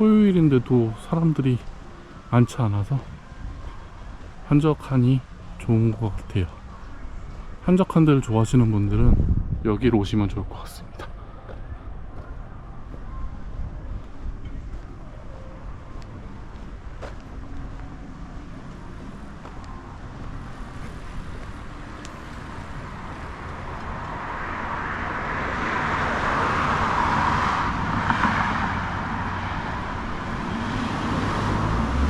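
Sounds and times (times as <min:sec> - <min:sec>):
vehicle tyre noise passing: 0:00.0 - 0:32.0.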